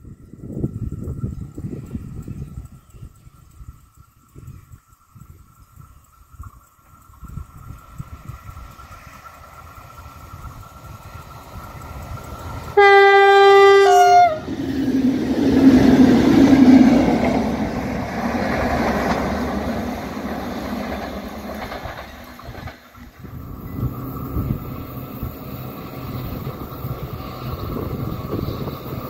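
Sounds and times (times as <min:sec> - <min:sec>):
train wheels rumbling on rail: 0:00.0 - 0:29.0
train horn blast: 0:12.8 - 0:14.5.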